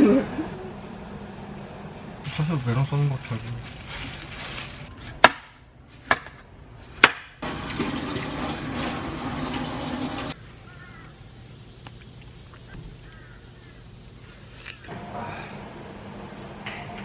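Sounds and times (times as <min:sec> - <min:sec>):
water running: 0:07.4 - 0:10.4
faint chirps: 0:10.4 - 0:14.9.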